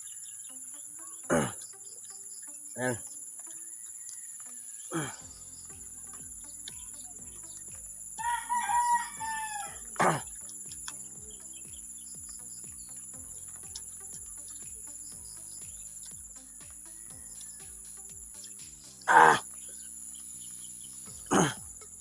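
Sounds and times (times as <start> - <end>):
high insect-like chirring: 0.0 - 22.0
long pitched animal call: 19.1 - 19.5.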